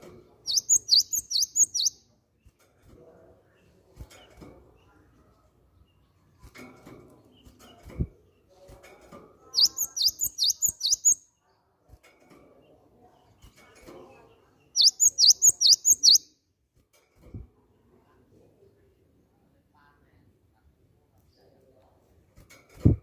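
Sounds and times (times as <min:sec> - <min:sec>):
bird singing sharp repeated notes: 0:00.5 - 0:02.0, 0:09.6 - 0:11.2, 0:14.8 - 0:16.3.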